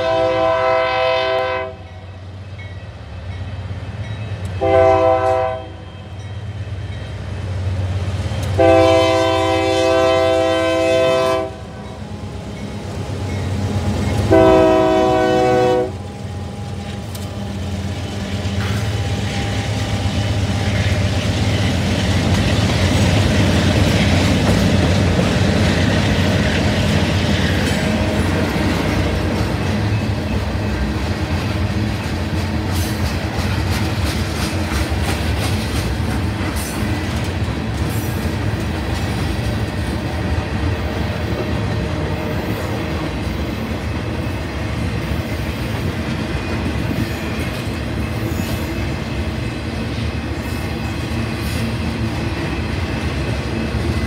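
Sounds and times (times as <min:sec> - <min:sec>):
locomotive air horn blasts: 0:00.0 - 0:02.0, 0:04.6 - 0:06.1, 0:08.6 - 0:11.8, 0:14.2 - 0:17.1
freight cars rolling on rails: 0:02.1 - 0:54.0
locomotive engine rumble: 0:02.2 - 0:54.0.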